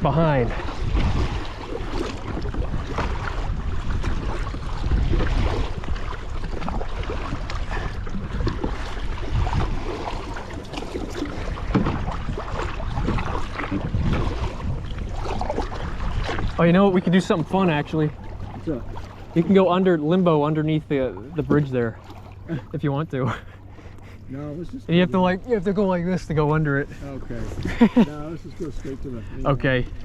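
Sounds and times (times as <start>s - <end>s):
wind rumbling on microphone: 0.0s - 22.7s
paddle splashes: 0.0s - 24.3s
water sloshing against hull: 0.0s - 30.0s.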